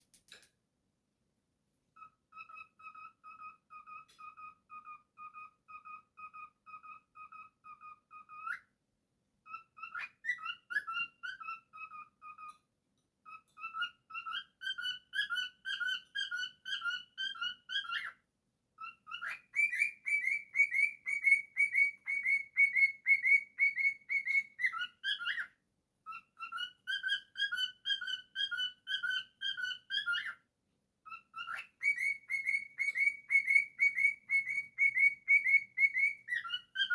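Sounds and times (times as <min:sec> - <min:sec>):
cockatiel whistling: 0:09.5 - 0:12.5, 0:13.3 - 0:18.2, 0:18.8 - 0:25.5, 0:26.1 - 0:30.4, 0:31.1 - 0:36.9.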